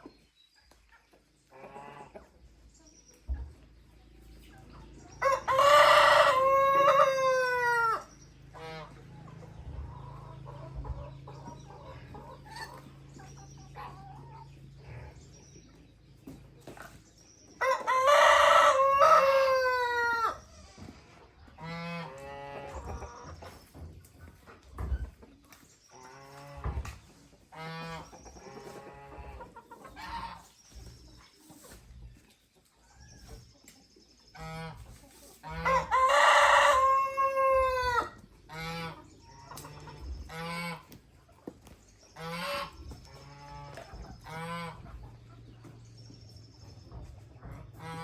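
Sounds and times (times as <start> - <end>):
rooster crowing: 5.2 - 8.1, 17.6 - 20.4, 35.6 - 38.2
clucking calls: 21.4 - 32.3.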